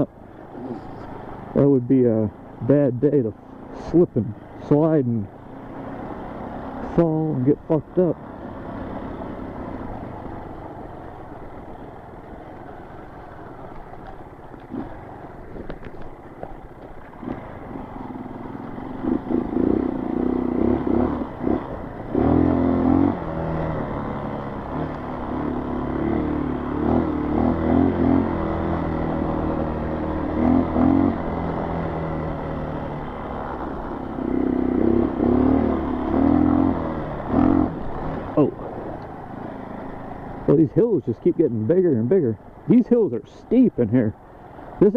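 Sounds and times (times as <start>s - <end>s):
dirt bike engine revving: 14.6s - 15.3s, 17.1s - 44.9s.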